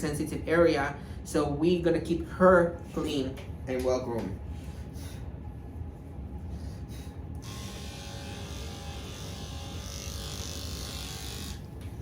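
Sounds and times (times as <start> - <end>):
electric clippers humming: 7.3 - 12.0
clippers cutting fur: 7.4 - 11.7.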